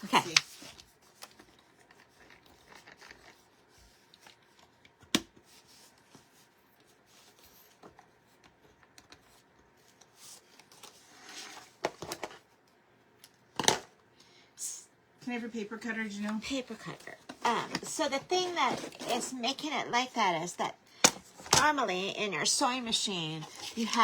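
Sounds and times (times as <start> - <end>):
paper rustling and shuffling: 0.0 - 12.5, 16.2 - 19.6, 22.8 - 24.0.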